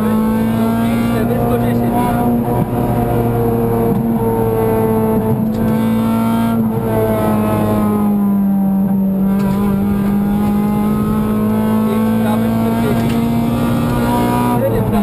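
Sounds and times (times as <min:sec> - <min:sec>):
car engine at high revs: 0:00.0 - 0:15.0.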